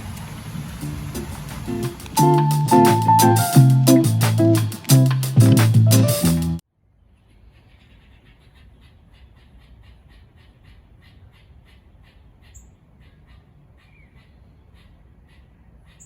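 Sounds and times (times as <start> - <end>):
bird calling: 0.0 - 5.6
music: 1.2 - 6.6.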